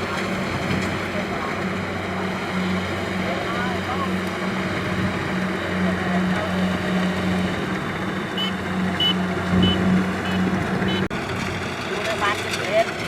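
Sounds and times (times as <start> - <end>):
diesel engine running: 0.0 - 13.0
short high beeps: 8.4 - 11.1.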